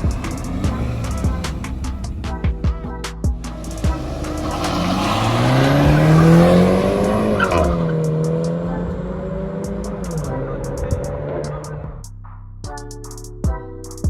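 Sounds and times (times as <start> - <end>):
car engine accelerating: 0.0 - 12.0
music with a beat: 0.0 - 14.0.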